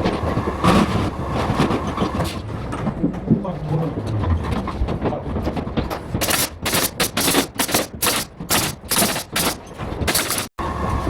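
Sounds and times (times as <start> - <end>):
jobsite clatter: 4.2 - 10.6
nail gun firing: 6.2 - 10.5.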